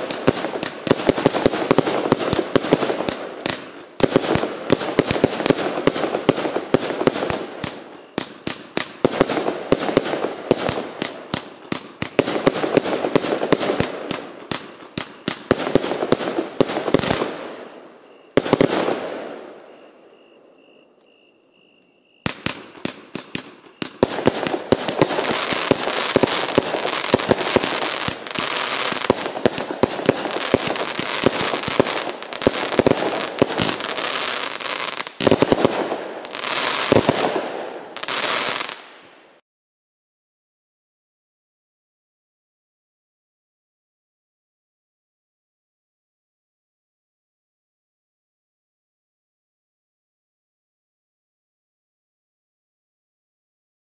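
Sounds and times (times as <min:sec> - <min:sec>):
firework crackle: 0:00.0 - 0:19.8, 0:22.2 - 0:39.4.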